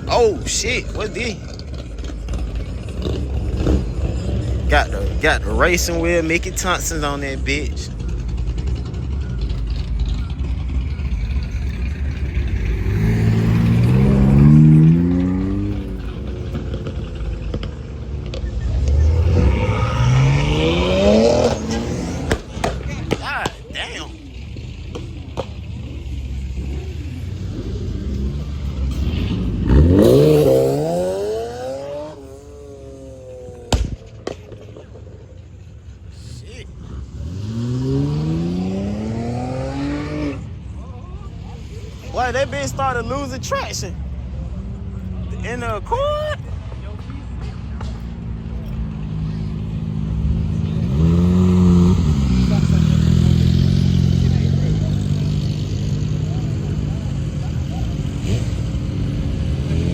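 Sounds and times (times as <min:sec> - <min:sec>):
car engine accelerating: 0:00.0 - 0:59.9
car engine revving hard: 0:12.4 - 0:17.6, 0:18.2 - 0:23.4, 0:27.5 - 0:33.9, 0:37.0 - 0:40.4, 0:50.4 - 0:56.5
sharp bangs: 0:19.0 - 0:23.7, 0:33.6 - 0:35.0.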